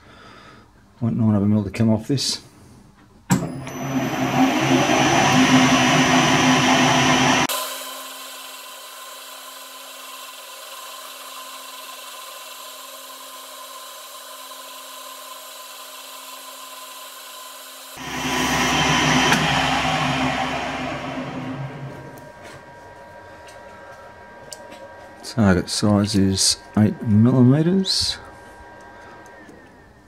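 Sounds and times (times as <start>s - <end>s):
lathe cutting metal: 3.5s - 22.7s, 25.1s - 29.6s
lathe running hum: 3.5s - 30.0s.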